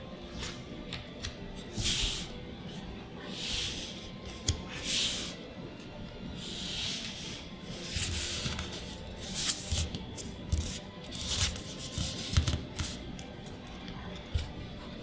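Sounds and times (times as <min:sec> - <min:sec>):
cards sliding softly: 0:06.4 - 0:13.5.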